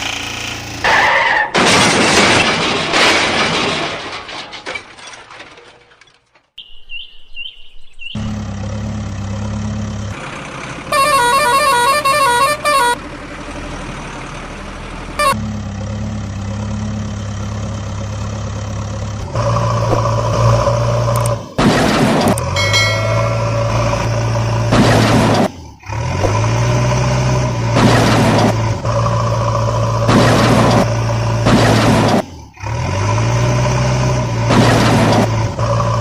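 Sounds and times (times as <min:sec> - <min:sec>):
vehicle engine running: 0:00.0 - 0:00.9, 0:07.9 - 0:36.0
second horn tone: 0:10.9 - 0:13.0
horn honking: 0:10.9 - 0:13.1, 0:15.2 - 0:15.4, 0:22.6 - 0:24.4.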